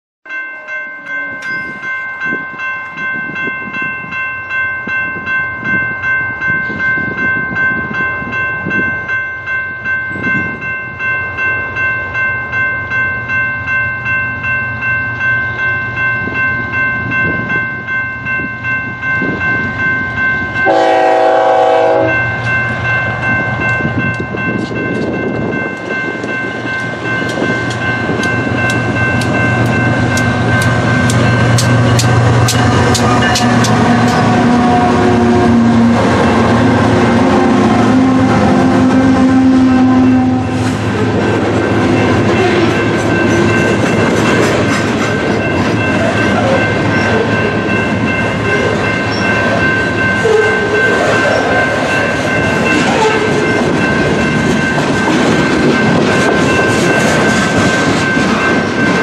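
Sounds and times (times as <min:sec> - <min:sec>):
crossing bell ringing: 0:00.2 - 0:59.0
diesel locomotive rumble: 0:09.8 - 0:59.0
train horn blast: 0:20.6 - 0:22.3, 0:32.9 - 0:41.0.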